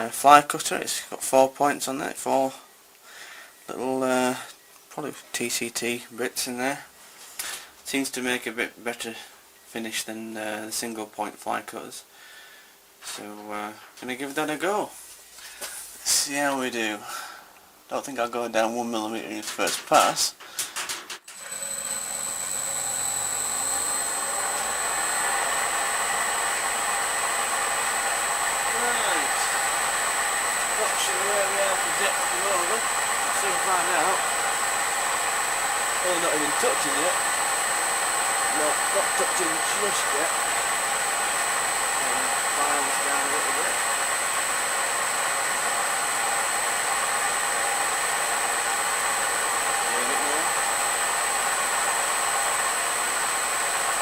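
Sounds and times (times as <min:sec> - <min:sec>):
milling machine high whine: 0:21.3 - 0:54.0.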